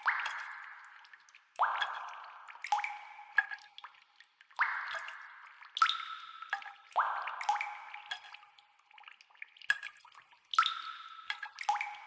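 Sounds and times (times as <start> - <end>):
water drops plinking in cave pool: 0.0 - 12.0.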